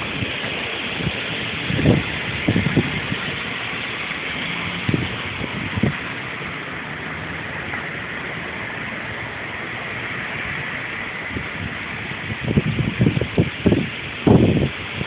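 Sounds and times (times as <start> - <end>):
low gusty thumps: 0.0 - 6.6, 11.1 - 14.8
hurricane wind rushing: 0.0 - 15.0.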